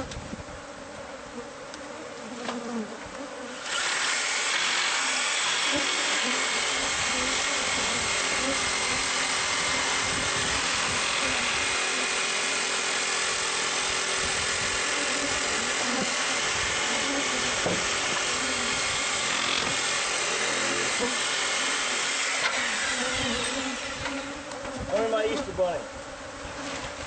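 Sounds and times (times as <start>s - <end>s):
bees buzzing: 0.0s - 27.0s
electric power tool running: 3.6s - 24.7s.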